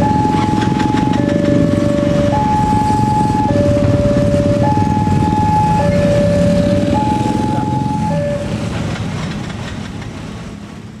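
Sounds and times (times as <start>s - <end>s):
level crossing alarm two-tone: 0.0s - 8.7s
motorbike and car engines: 0.0s - 11.0s.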